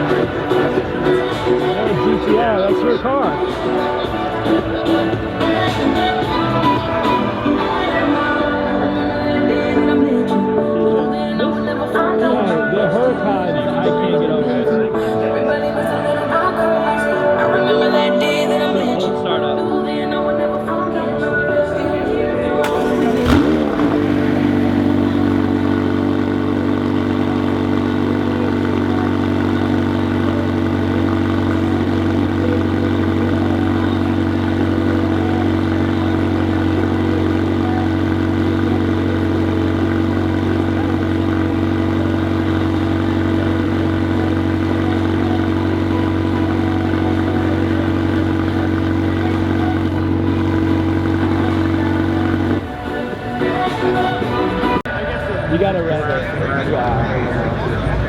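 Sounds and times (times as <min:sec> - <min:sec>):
car engine idling: 0:00.0 - 0:10.2, 0:22.6 - 0:54.8
engine rev blip: 0:22.6 - 0:54.8.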